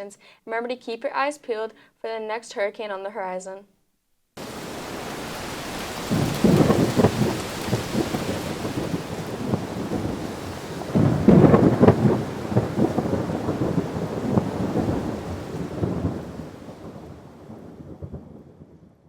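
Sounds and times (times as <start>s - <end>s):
rain: 4.4s - 19.0s
rolling thunder: 4.4s - 19.0s.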